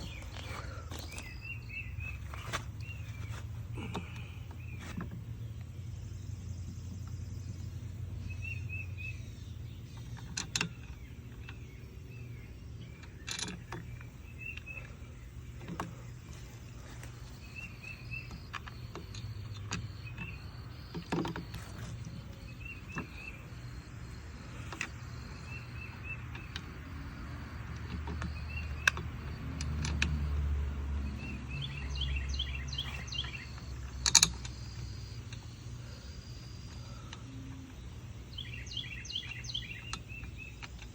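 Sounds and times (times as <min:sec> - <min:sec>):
bird chirps: 0:00.0 - 0:40.9
low outdoor rumble: 0:00.0 - 0:40.9
plastic parts clicking and knocking: 0:13.0 - 0:14.8, 0:15.6 - 0:16.3, 0:18.2 - 0:23.4, 0:33.3 - 0:35.5.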